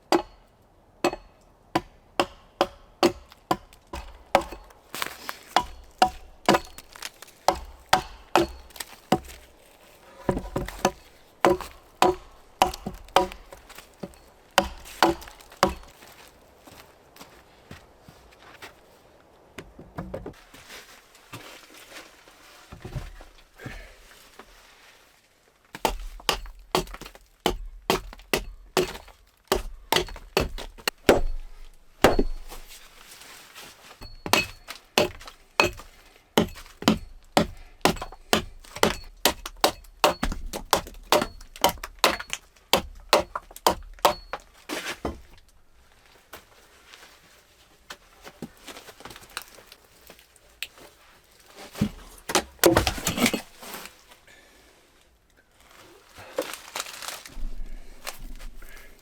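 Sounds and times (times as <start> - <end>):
chopping wood: 0.0 - 0.4, 1.0 - 9.6, 10.2 - 16.0, 25.8 - 32.8, 34.0 - 45.4, 51.8 - 53.5.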